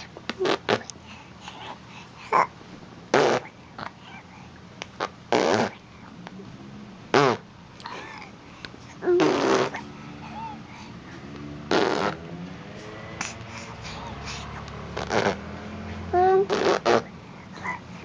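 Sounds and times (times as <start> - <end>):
baby blowing raspberries: 0.0 - 0.9, 3.1 - 3.6, 5.0 - 5.8, 8.9 - 12.2, 13.2 - 15.5, 16.1 - 17.8.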